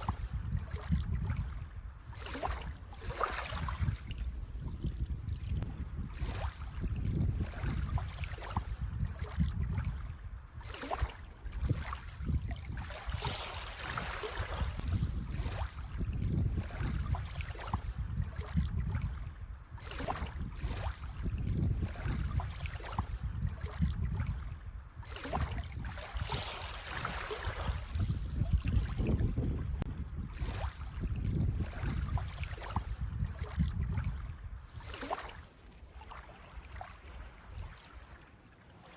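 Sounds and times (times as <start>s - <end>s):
wind rumble on microphone: 0.0s - 38.2s.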